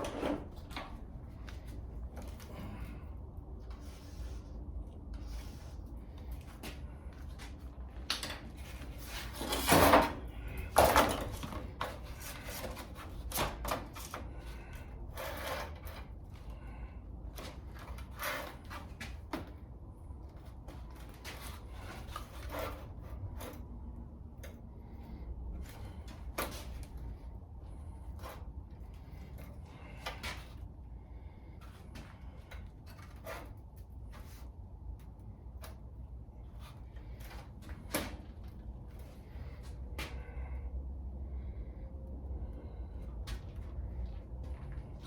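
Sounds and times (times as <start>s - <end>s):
steady low rumble: 15.9s - 32.9s, 33.6s - 45.0s.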